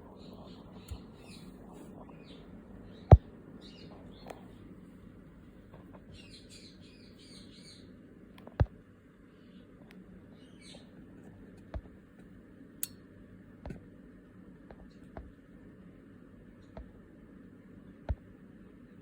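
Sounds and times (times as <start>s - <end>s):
small birds chirping: 0.0s - 8.5s, 9.1s - 11.4s
low steady hum: 0.0s - 19.0s.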